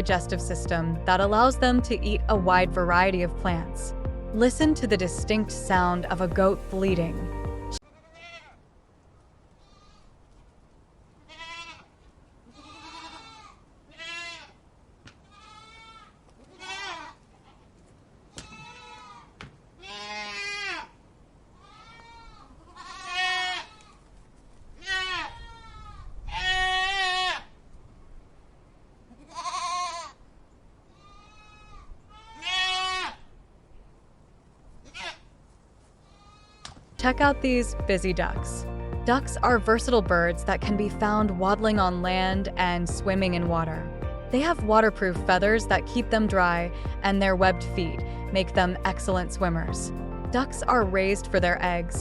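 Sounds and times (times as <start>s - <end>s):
goats bleating: 11.3s - 11.9s, 12.6s - 14.6s, 15.3s - 17.2s, 18.4s - 20.9s, 21.6s - 23.9s, 29.2s - 30.1s, 31.0s - 33.2s.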